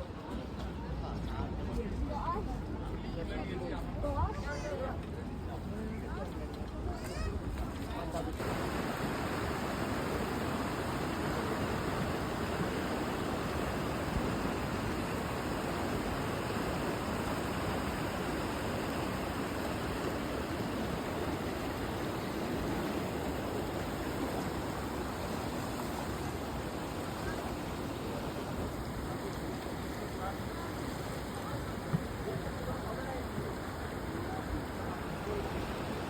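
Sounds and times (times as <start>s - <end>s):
steady rushing noise: 8.4s - 30.7s.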